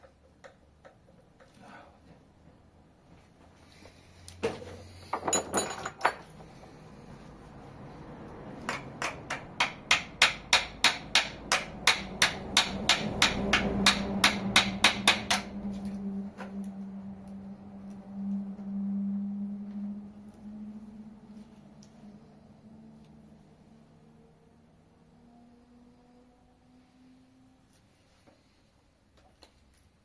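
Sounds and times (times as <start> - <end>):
hammer striking metal: 8.7 - 15.6
low steady hum: 10.6 - 29.0.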